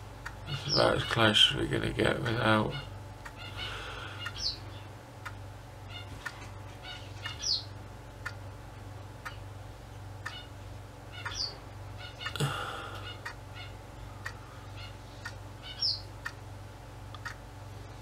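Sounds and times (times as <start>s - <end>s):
steady low hum: 0.0s - 18.0s
bird chirping: 2.7s - 4.9s, 6.8s - 7.8s, 11.1s - 12.4s, 14.6s - 16.1s.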